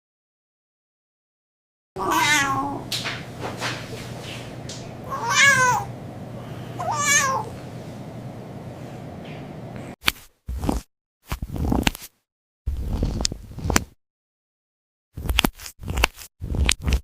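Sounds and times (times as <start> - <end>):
cat meowing: 2.0 - 2.9, 5.1 - 5.9, 6.8 - 7.6
steady low hum: 2.1 - 10.0.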